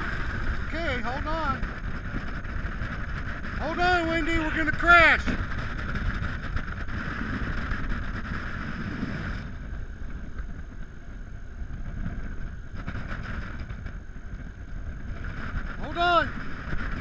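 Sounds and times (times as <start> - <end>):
plane engine and wind rumble: 0.0 - 17.0.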